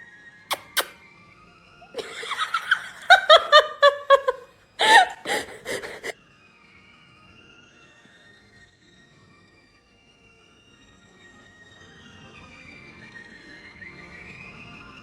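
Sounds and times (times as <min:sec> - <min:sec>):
person laughing: 0:01.9 - 0:06.1.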